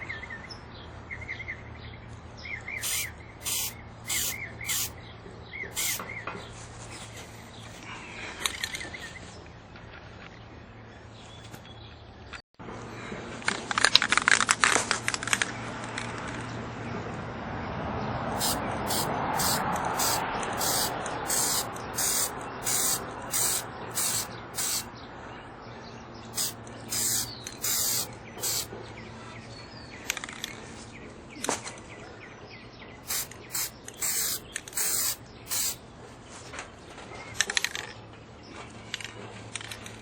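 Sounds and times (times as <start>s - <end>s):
aerosol spray can hissing: 2.8s - 4.9s, 5.8s - 6.0s, 18.4s - 24.9s, 26.4s - 28.7s, 33.1s - 35.8s.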